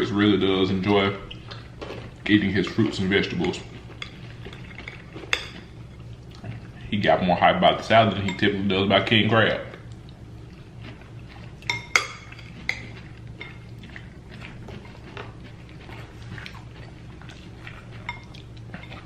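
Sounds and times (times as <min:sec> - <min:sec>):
low steady hum: 0:00.0 - 0:19.0
forks clinking against plates: 0:11.6 - 0:13.6.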